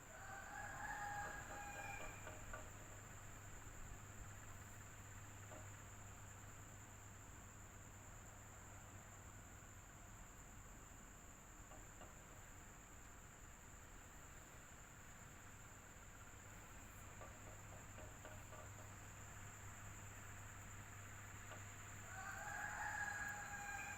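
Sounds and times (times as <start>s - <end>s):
electric fan humming: 0.0s - 23.9s.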